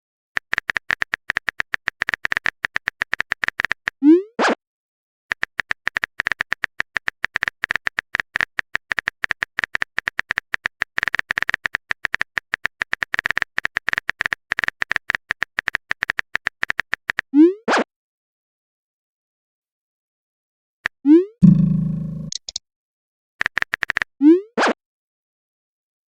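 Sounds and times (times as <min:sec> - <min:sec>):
keyboard typing clicks: 0:21.4 - 0:22.6
short rising blip: 0:21.4 - 0:22.6.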